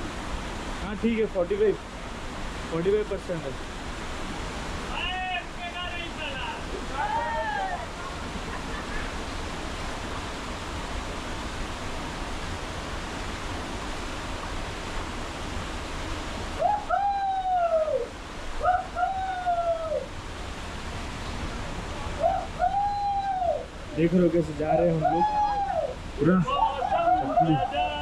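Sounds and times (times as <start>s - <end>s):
waterfall roaring: 0.0s - 28.0s
long rising and falling calls: 22.2s - 23.8s.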